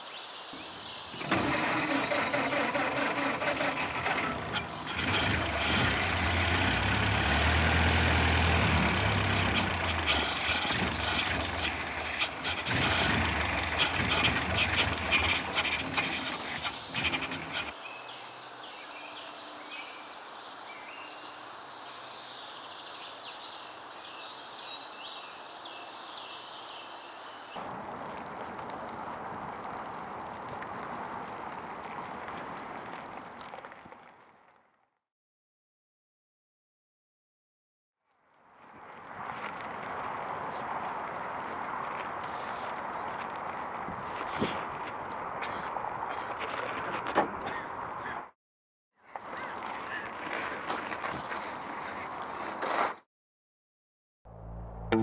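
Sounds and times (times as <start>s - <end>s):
small birds chirping: 0.0s - 27.6s
truck engine humming: 0.6s - 17.8s, 54.3s - 55.0s.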